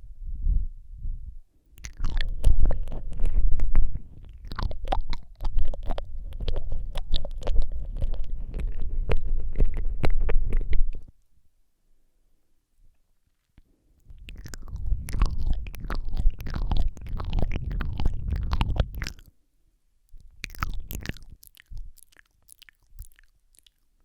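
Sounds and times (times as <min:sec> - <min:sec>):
deep rumble: 0:00.0 - 0:11.1, 0:14.1 - 0:19.2
wet lip and tongue clicks: 0:01.8 - 0:11.1, 0:13.6 - 0:19.3, 0:20.1 - 0:24.0.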